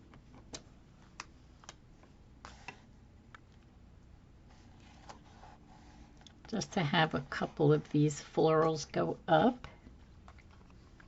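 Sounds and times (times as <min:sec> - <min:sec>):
soft paper rustle: 0:04.4 - 0:08.9.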